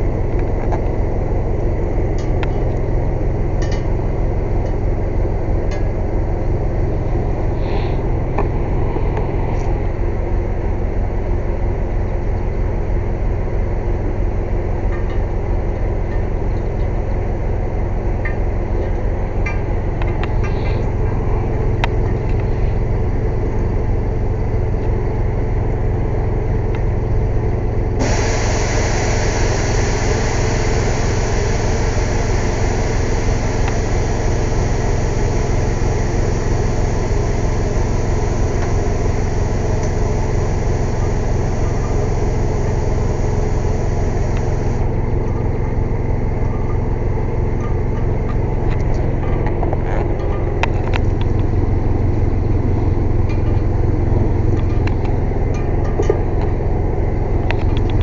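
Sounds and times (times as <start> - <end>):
air compressor engine running: 26.5 - 46.4
compressed air hissing: 28.0 - 44.8.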